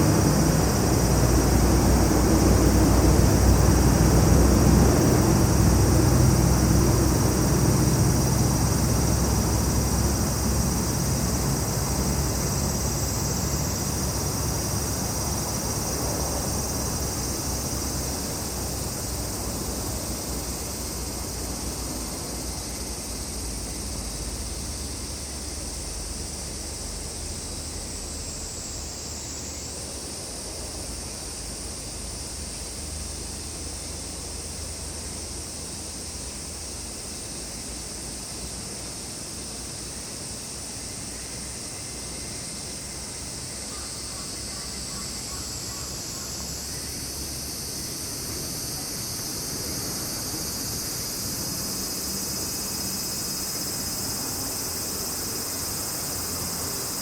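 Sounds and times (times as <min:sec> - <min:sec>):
low engine drone: 0:00.0 - 0:29.0
insects chirring: 0:00.0 - 0:57.0.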